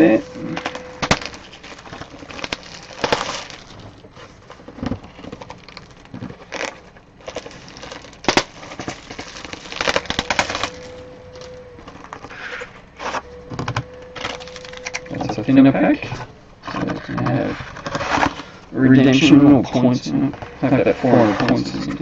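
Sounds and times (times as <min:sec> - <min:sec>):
faint steady hum: 0:00.0 - 0:22.0
card pack wrapper crinkling: 0:00.1 - 0:13.2, 0:14.2 - 0:16.0.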